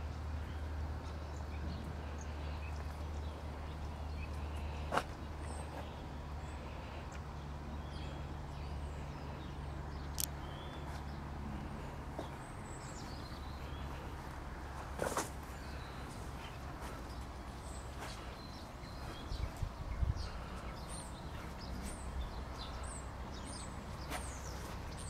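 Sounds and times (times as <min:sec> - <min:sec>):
low outdoor rumble: 0:00.0 - 0:25.0
small birds chirping: 0:00.0 - 0:25.0.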